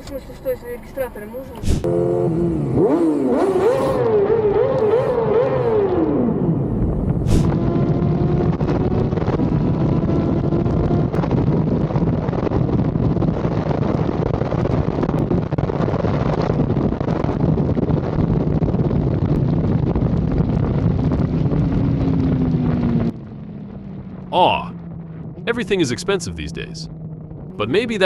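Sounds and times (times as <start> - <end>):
faint engine hum: 0.0 - 7.5, 20.4 - 28.0
wind and road noise: 0.0 - 28.0.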